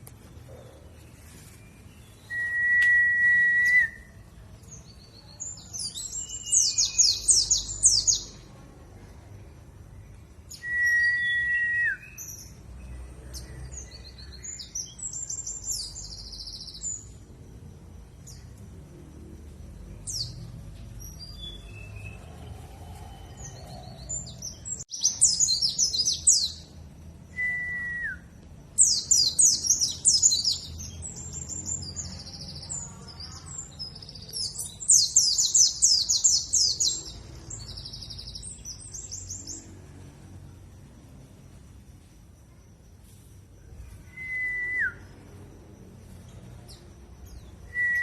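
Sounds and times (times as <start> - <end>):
bird twittering trills: 4.6 - 8.4.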